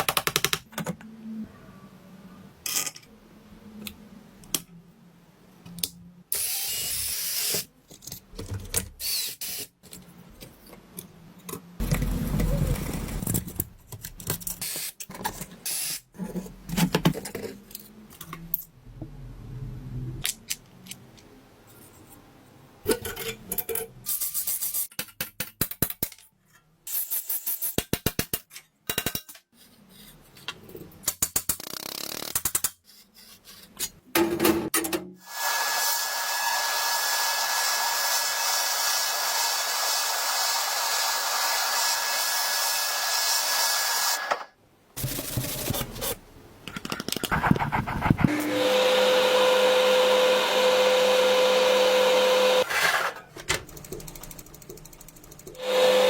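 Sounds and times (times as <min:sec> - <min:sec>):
fast clicking: 0:53.6 - 0:55.6.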